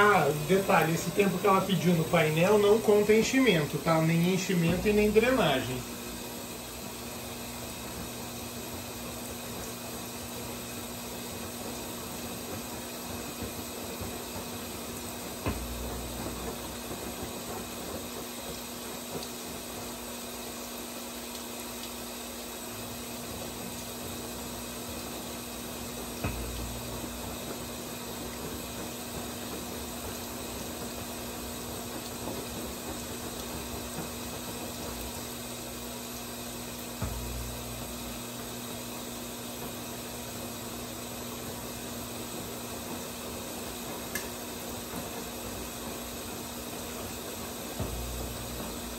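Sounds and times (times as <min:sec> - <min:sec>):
water rushing into washing machine: 0:00.0 - 0:48.9
low steady hum: 0:36.7 - 0:38.6
brief low thumps: 0:37.0 - 0:37.7.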